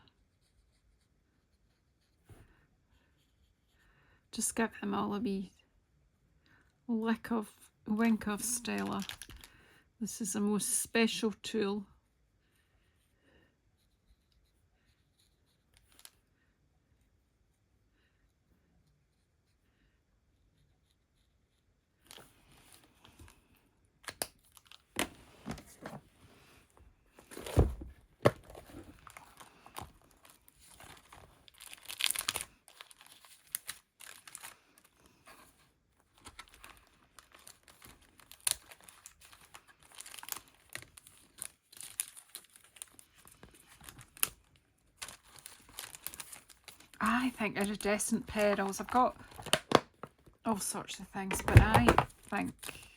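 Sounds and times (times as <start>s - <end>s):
plastic packaging crinkling: 27.2s - 35.0s, 36.2s - 50.2s.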